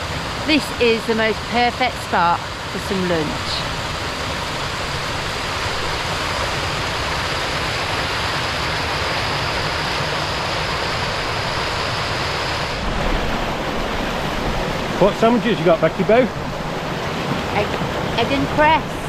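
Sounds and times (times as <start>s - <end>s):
wind rumble on microphone: 12.4s - 19.0s.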